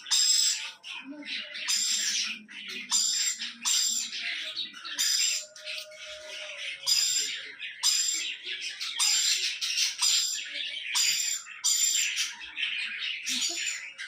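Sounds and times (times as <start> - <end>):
budgerigars rasping calls: 0.0 - 0.9, 1.5 - 12.4.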